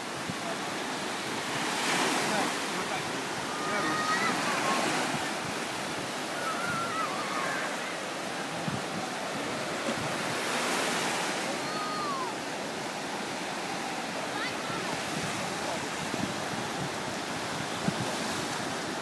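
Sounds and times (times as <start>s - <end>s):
sea surf washing on shore: 0.0s - 19.0s
faint distant high calls: 6.2s - 8.2s, 11.5s - 12.4s.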